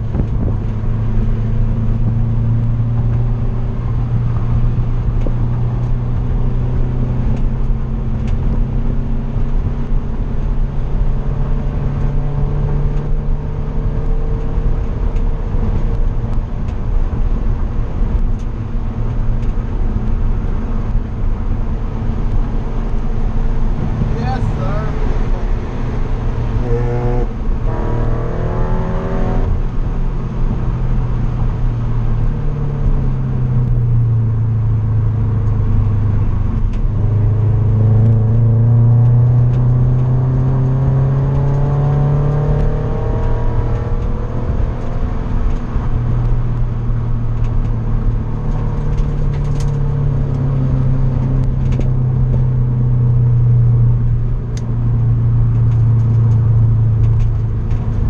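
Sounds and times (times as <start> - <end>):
car engine revving: 0.0 - 58.0
road noise: 0.0 - 58.0.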